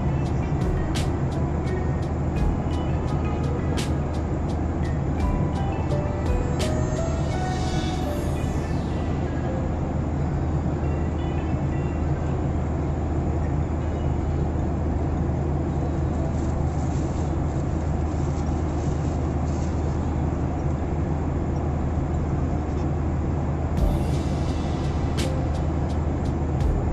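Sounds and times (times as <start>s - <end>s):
airliner cabin engine drone: 0.0s - 26.9s.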